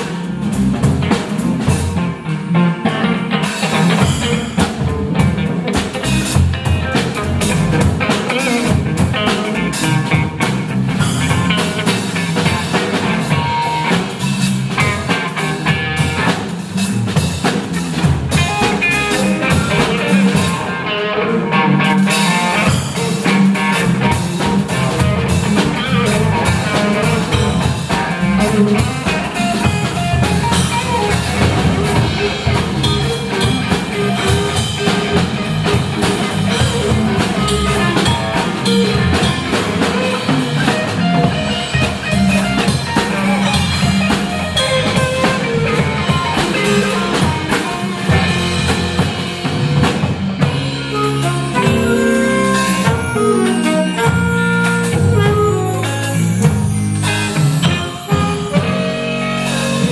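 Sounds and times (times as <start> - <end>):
live band with guitar and drums: 0.0 - 59.9.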